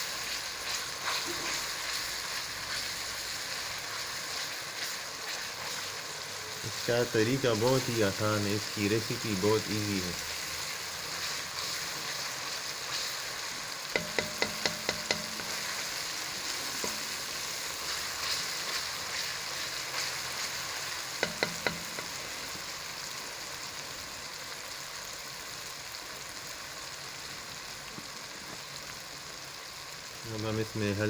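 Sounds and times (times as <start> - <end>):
food sizzling in hot oil: 0.0 - 31.0
spoon tapping metal pan: 13.9 - 16.1, 16.7 - 17.5, 21.2 - 22.3.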